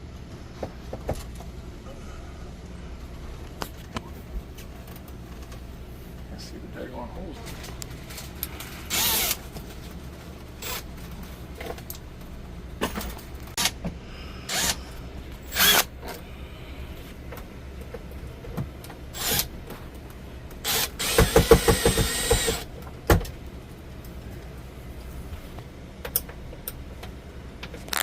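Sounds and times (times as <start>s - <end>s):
low steady hum: 0.0s - 28.0s
cordless drill driving screws: 8.9s - 9.4s, 14.5s - 14.8s, 15.5s - 15.9s, 19.2s - 19.5s, 20.6s - 22.7s
drill rattling rapid pulses: 8.9s - 9.4s, 15.5s - 15.9s, 19.2s - 19.5s, 20.6s - 22.7s.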